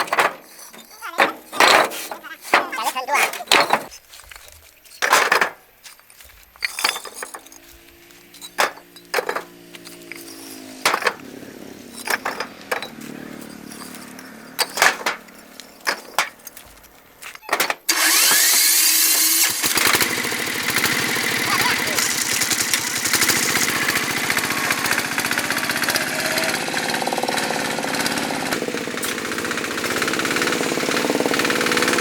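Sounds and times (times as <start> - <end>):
sharp knocks and clatter: 0.0 - 17.9.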